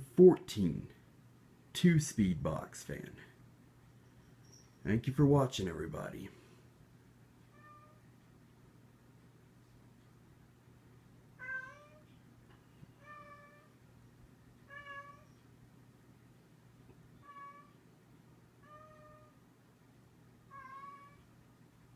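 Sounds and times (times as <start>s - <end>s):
faint low hum: 0.0s - 21.9s
cat meowing faintly: 7.5s - 8.0s, 11.4s - 12.1s, 13.0s - 13.8s, 14.7s - 15.4s, 17.2s - 17.8s, 18.6s - 19.4s, 20.5s - 21.3s.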